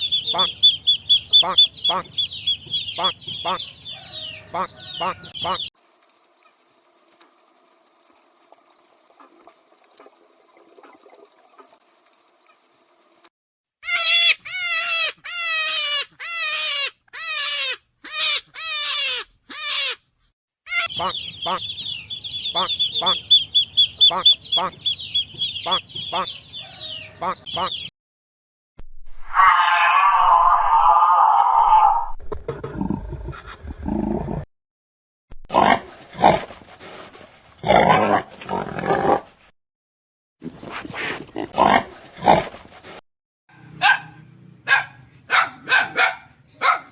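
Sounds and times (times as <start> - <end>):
animal calling: 13.8 - 20.0, 29.3 - 32.1
dog barking and yelping: 43.6 - 46.9.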